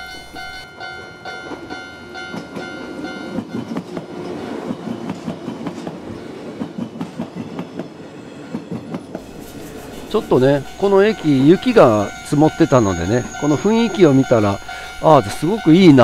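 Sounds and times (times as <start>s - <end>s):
level crossing warning bell: 0.0s - 5.2s, 9.5s - 16.0s
train wheels clattering: 1.3s - 16.0s.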